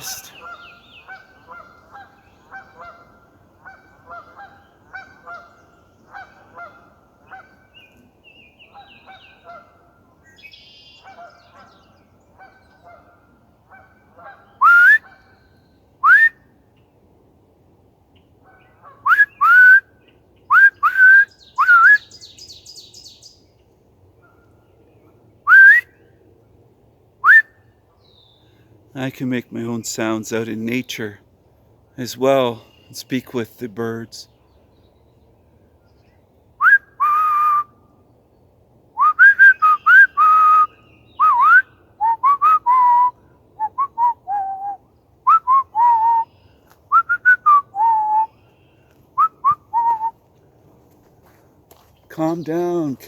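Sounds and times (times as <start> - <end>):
geese honking: 0.0 - 7.7
man whistling: 14.6 - 15.0, 16.0 - 16.4, 19.1 - 19.8, 20.5 - 22.0, 25.5 - 25.9, 27.2 - 27.5, 36.6 - 37.7, 39.0 - 46.2, 46.9 - 48.3, 49.2 - 50.2.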